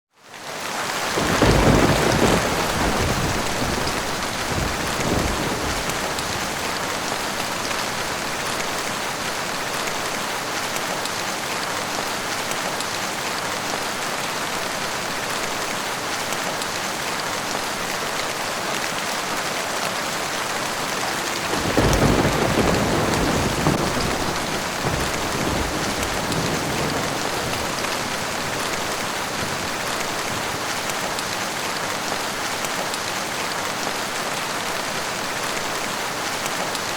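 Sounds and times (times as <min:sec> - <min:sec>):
rain falling: 0:00.2 - 0:36.9
thunder rumbling: 0:01.2 - 0:08.6, 0:20.4 - 0:30.7.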